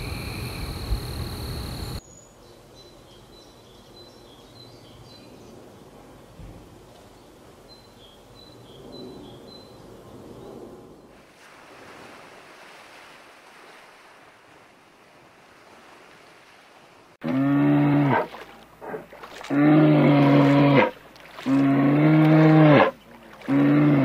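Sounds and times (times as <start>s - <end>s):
faint sea noise: 9.7s - 24.0s.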